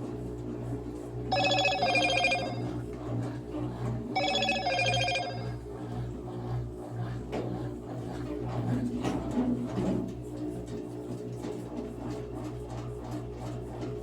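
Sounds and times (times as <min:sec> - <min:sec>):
telephone ringing: 0:01.3 - 0:02.8, 0:04.2 - 0:05.6
washing machine humming: 0:01.3 - 0:02.8, 0:04.2 - 0:05.7.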